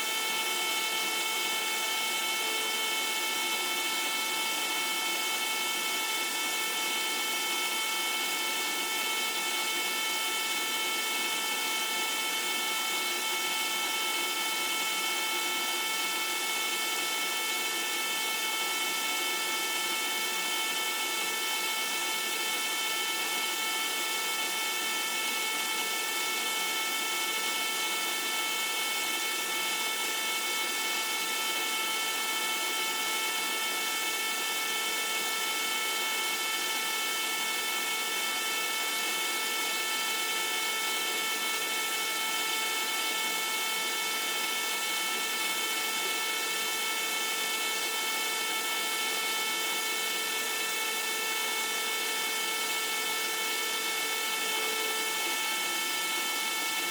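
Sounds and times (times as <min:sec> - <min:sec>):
small pump motor whine: 0:00.0 - 0:56.9.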